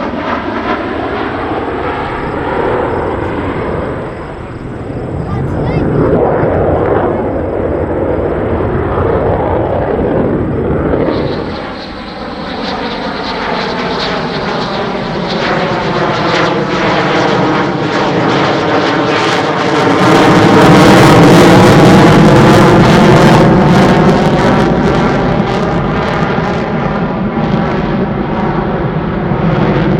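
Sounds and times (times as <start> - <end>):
fighter jet engine roar: 0.0 - 29.9.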